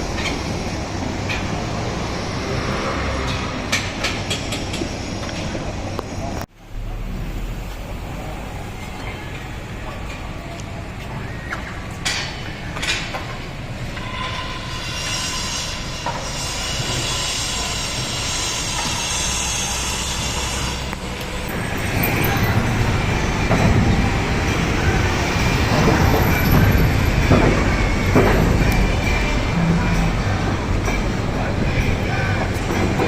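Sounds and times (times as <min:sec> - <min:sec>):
metallic squealing and grinding: 0:13.9 - 0:33.0
heavy machinery rumble: 0:18.0 - 0:33.0
clanks and knocks: 0:25.7 - 0:31.2.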